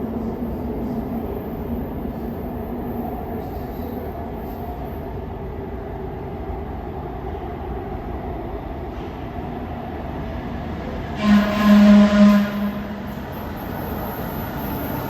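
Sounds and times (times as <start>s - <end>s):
subway train rumble: 0.0s - 15.0s
low-pitched train horn: 11.2s - 13.1s.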